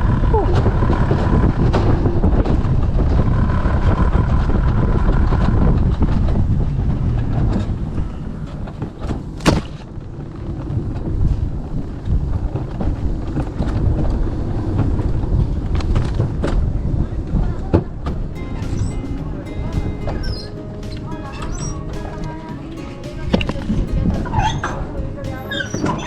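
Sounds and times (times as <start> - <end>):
wind on microphone: 0.0 - 8.6.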